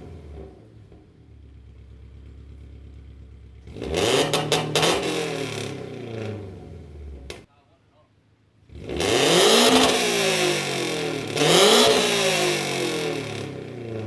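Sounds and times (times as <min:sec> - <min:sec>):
car engine idling and revving: 0:00.0 - 0:07.5, 0:08.6 - 0:14.0
exhaust crackles: 0:00.0 - 0:07.5.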